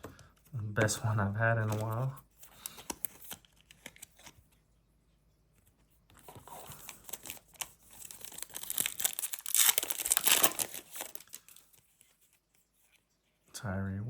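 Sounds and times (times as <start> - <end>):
wrapper tearing and crinkling: 6.6 - 11.7.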